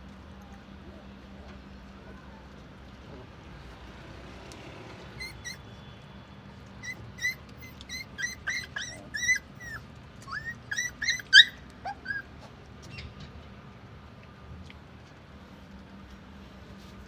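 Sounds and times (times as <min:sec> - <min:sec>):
puppies crying: 0:05.1 - 0:05.8, 0:06.6 - 0:13.0.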